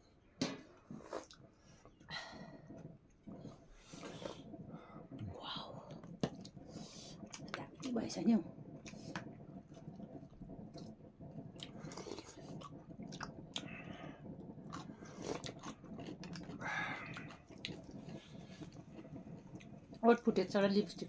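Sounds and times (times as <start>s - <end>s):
wet mouth clicks: 0.9s - 5.3s, 8.7s - 19.8s
people chewing and biting: 10.5s - 19.8s.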